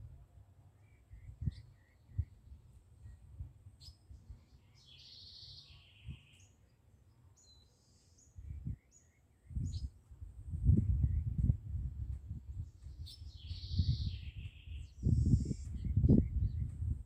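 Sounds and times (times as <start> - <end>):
low rumble on microphone: 9.5 - 17.0.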